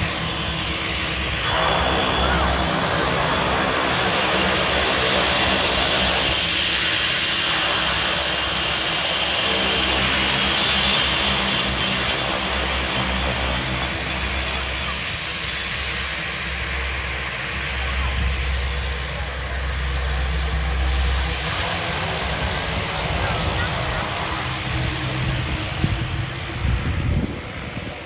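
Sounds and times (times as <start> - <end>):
turboprop engines whining: 0.0 - 28.0.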